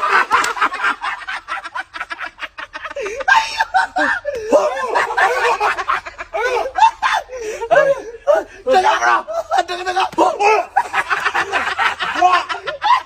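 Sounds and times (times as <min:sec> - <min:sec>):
people laughing: 0:00.0 - 0:13.0.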